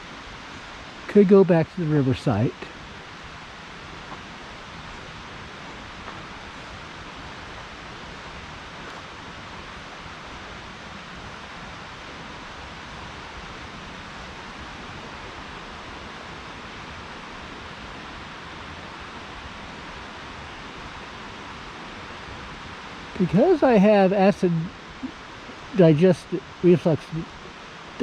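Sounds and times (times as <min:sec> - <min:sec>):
river rushing: 0:00.0 - 0:28.0.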